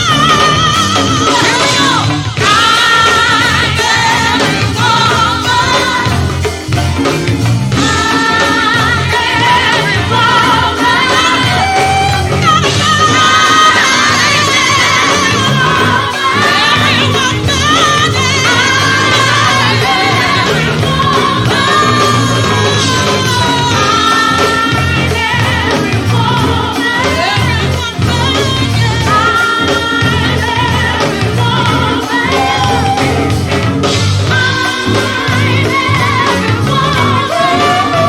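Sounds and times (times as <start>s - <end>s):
bass and drum groove: 0.0s - 38.0s
live band playing: 0.0s - 38.0s
person singing: 7.8s - 33.6s, 34.3s - 38.0s.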